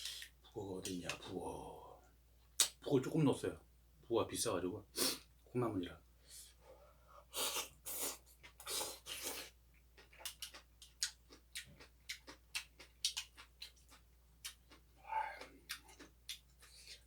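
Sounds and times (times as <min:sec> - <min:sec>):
chewing smacking clicks: 0:10.1 - 0:13.8.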